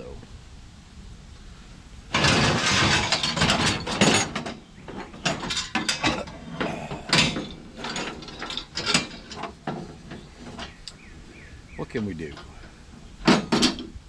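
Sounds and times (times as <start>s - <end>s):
scrap metal clanking and rattling: 2.1s - 10.8s, 12.2s - 14.0s.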